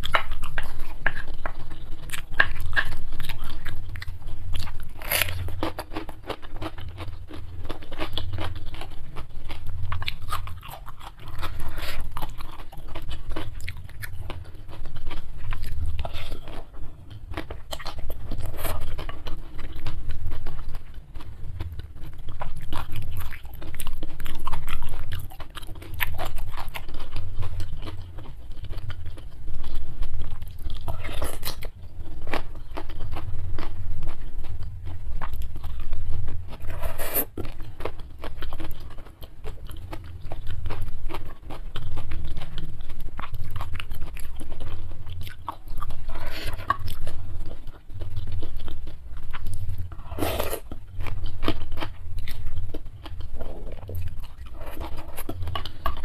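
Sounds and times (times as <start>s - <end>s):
crunching of raw cucumber: 0.0s - 20.0s
wet chewing and smacking: 0.0s - 56.0s
slurping noodles: 36.7s - 37.3s, 50.0s - 50.6s.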